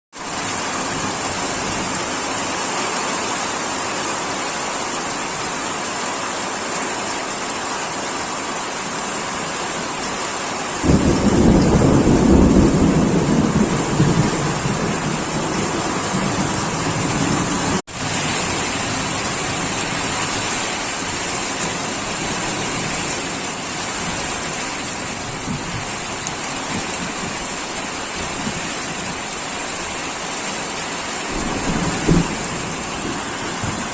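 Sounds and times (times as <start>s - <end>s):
heavy rain: 0.1s - 33.9s
thunder clap rumbling: 10.8s - 19.8s, 31.3s - 33.9s.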